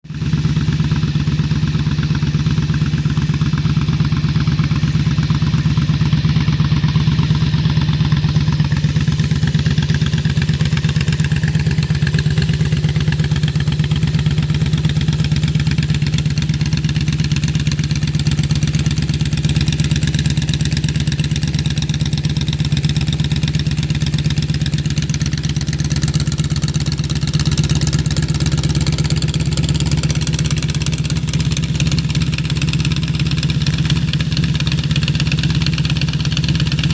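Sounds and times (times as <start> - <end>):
motorcycle engine idling: 0.1 - 36.9.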